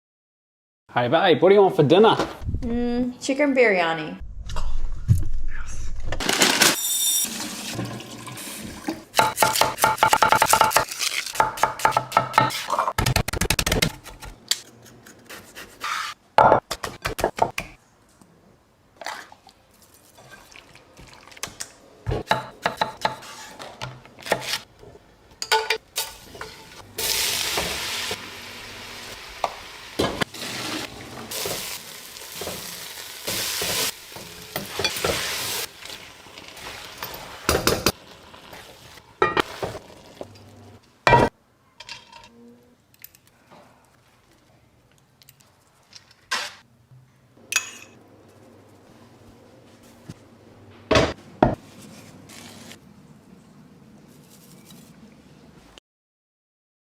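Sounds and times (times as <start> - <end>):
oil sizzling in pan: 25.9 - 40.6.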